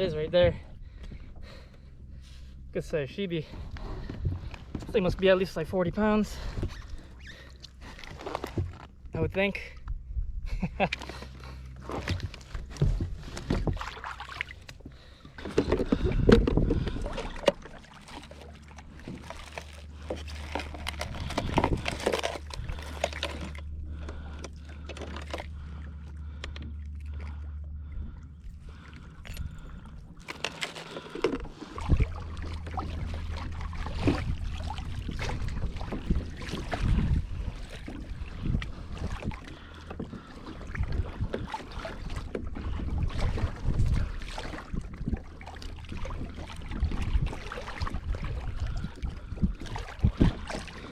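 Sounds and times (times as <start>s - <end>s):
steady low rumble: 0.0s - 50.9s
water splashing against kayak: 0.0s - 50.9s
gear knocking on hull: 11.8s - 26.8s.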